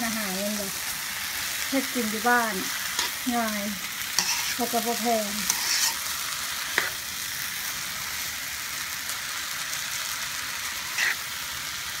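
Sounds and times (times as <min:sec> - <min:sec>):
noodles sizzling in a pan: 0:00.0 - 0:12.0
utensil scraping a pan: 0:04.1 - 0:06.1, 0:06.7 - 0:07.0, 0:10.8 - 0:11.2.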